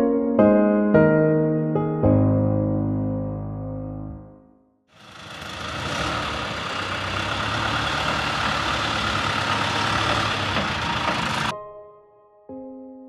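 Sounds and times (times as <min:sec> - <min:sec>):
piano tune: 0:00.0 - 0:05.3, 0:06.6 - 0:13.0
truck engine idling: 0:05.0 - 0:11.5.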